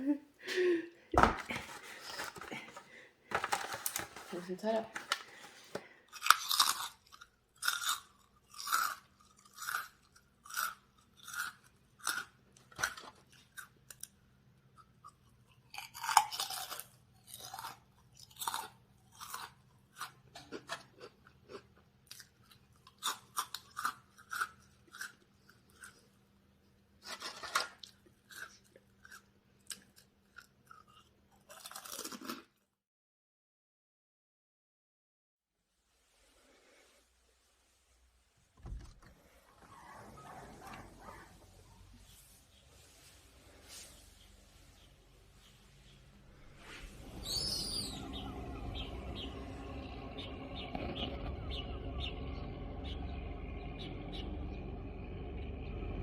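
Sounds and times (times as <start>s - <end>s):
crunchy food being chewed: 5.0s - 32.8s.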